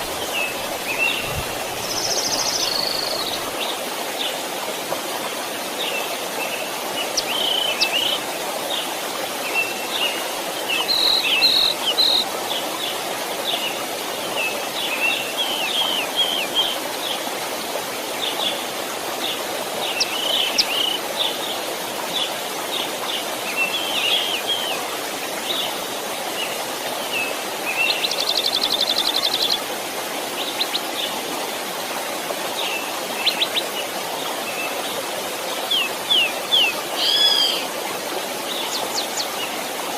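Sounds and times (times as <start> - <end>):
birds singing: 0.0 - 4.3, 5.8 - 8.8, 9.4 - 12.9, 13.5 - 17.2, 19.2 - 24.8, 35.7 - 37.7
stream flowing: 0.0 - 39.9.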